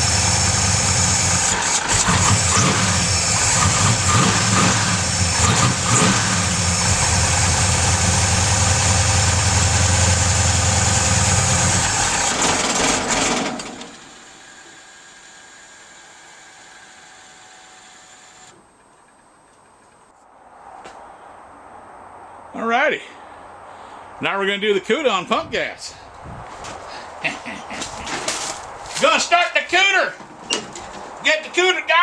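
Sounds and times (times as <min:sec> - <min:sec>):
engine idling: 0:00.0 - 0:20.1.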